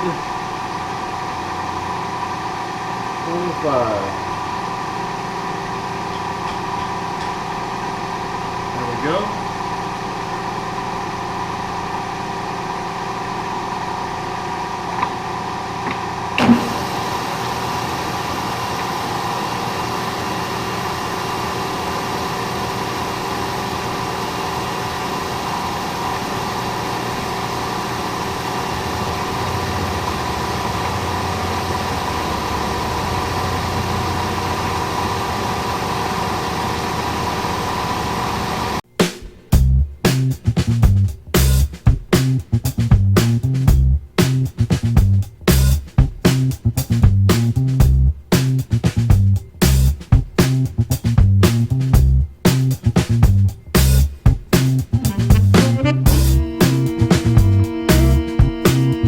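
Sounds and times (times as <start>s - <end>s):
milling machine cutting metal: 4.5s - 8.0s, 15.0s - 38.8s.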